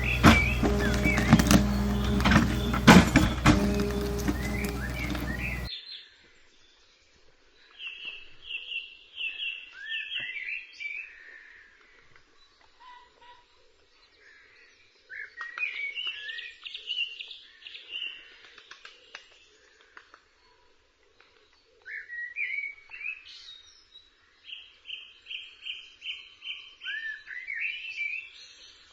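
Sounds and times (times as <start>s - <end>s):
songbird singing: 0.0s - 5.7s.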